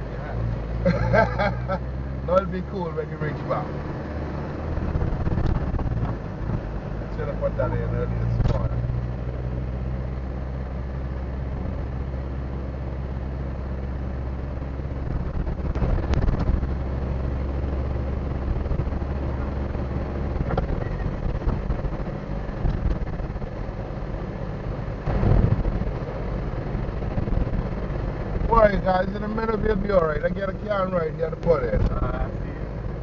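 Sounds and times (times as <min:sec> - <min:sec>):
car engine humming: 0:00.0 - 0:33.0.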